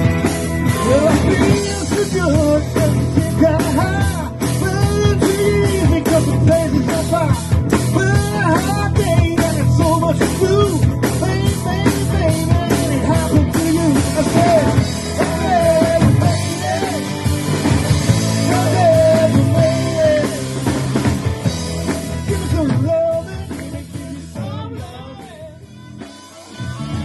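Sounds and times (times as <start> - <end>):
bass: 0.0 - 27.0
drums: 0.0 - 27.0.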